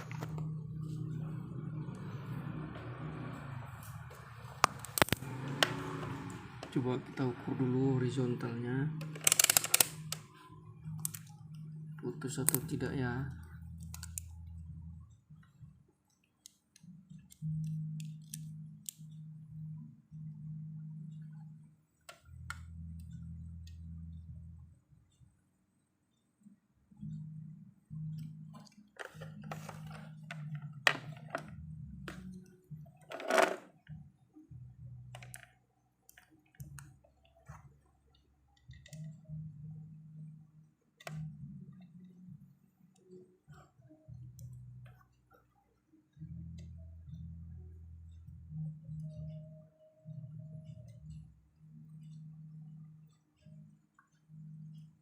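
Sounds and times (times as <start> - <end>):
low hum: 0.0 - 9.2
low steady hum: 0.0 - 33.2, 33.8 - 55.0
test probes clicking on circuit board: 9.0 - 10.3, 13.8 - 14.3.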